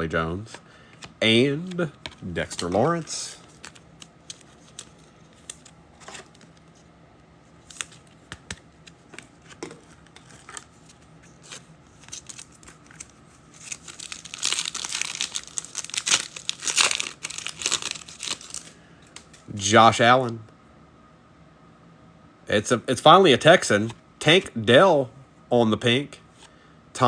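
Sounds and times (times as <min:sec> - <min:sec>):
foil wrapper tearing: 0:11.4 - 0:18.8.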